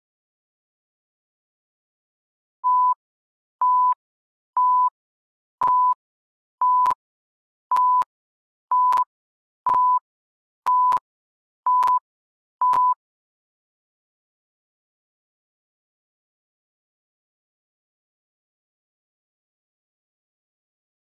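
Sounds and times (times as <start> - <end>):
short electronic beeps: 2.6 - 3.0, 3.6 - 4.0, 4.6 - 5.0, 5.6 - 6.0, 6.6 - 7.0, 7.7 - 8.1, 8.7 - 9.1, 9.7 - 10.0, 10.7 - 11.0, 11.7 - 12.0, 12.6 - 13.0.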